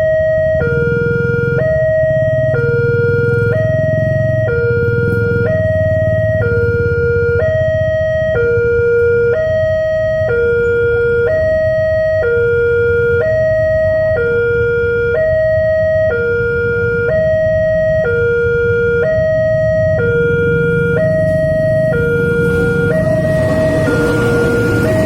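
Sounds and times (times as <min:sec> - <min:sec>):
level crossing two-tone alarm: 0:00.0 - 0:25.0
low engine rumble: 0:18.4 - 0:25.0.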